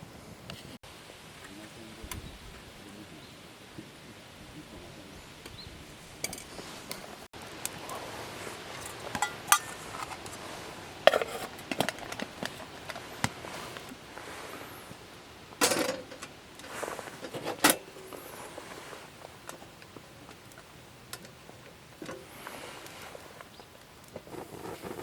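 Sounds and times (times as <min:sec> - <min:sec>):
metal cookware clinking: 0:08.8 - 0:09.9.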